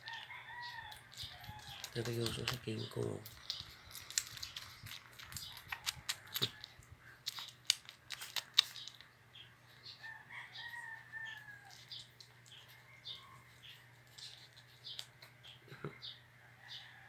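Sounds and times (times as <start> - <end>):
rooster crowing: 0.0 - 1.9, 10.0 - 12.0, 16.4 - 17.0
sharp clicks and crunches: 0.0 - 9.2.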